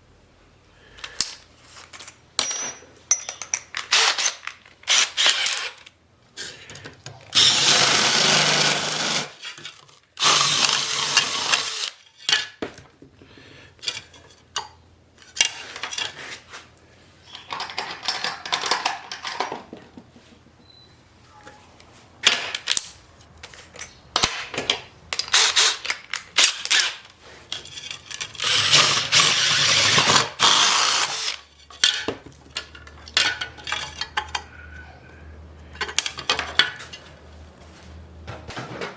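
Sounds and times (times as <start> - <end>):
metal parts clanking: 1.1 - 5.9, 17.3 - 19.8, 30.8 - 34.6
power tool on metal: 7.4 - 9.4, 10.2 - 12.0, 28.3 - 31.4.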